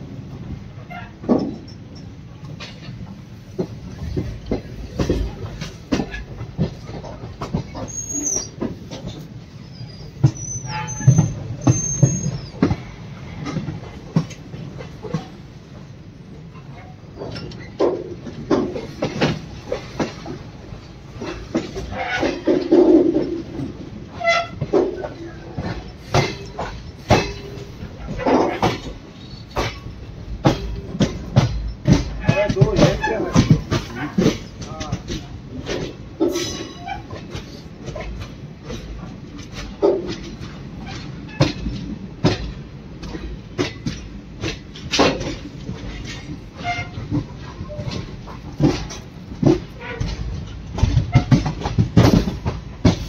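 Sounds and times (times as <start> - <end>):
train rumbling on rails: 0.0 - 53.0
wheels clacking over rail joints: 0.0 - 53.0
high wheel squeals: 7.8 - 8.6, 9.6 - 12.6.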